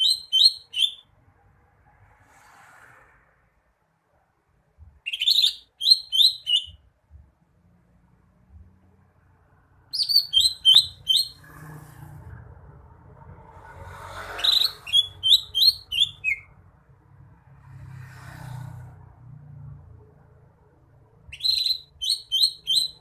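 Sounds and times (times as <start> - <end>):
bird whistling song: 0.0 - 1.1, 5.0 - 6.8, 9.9 - 11.5, 14.3 - 16.5, 21.3 - 23.0.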